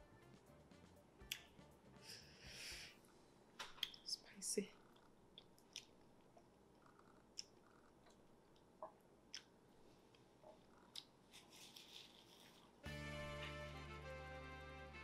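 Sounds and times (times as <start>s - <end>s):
soft chewing: 4.8s - 12.8s
wet mouth clicks and smacks: 5.0s - 9.6s.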